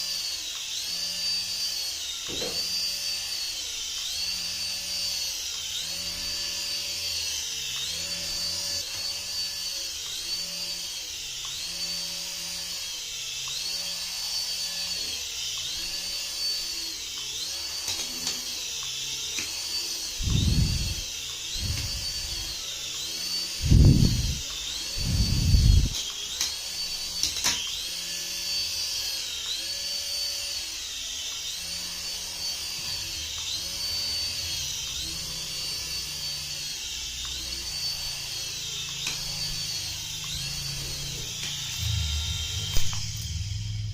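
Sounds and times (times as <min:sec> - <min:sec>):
rc toy electric whine: 0:00.0 - 0:43.9.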